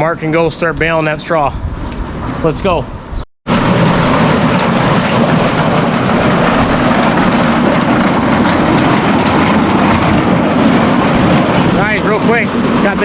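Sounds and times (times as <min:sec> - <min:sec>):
grain auger unloading: 0:03.5 - 0:13.0
tractor engine running: 0:03.5 - 0:13.0.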